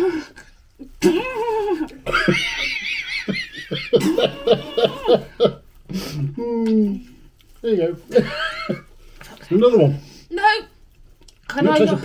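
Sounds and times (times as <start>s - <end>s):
people laughing: 0.9s - 5.6s, 8.1s - 8.9s.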